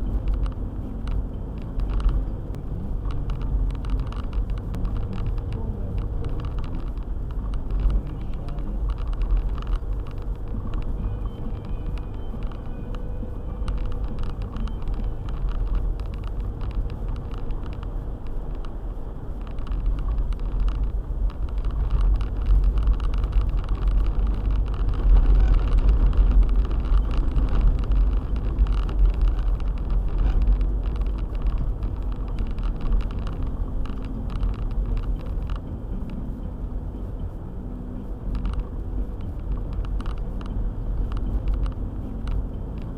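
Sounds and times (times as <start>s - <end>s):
car driving on snowy road: 0.0s - 42.9s.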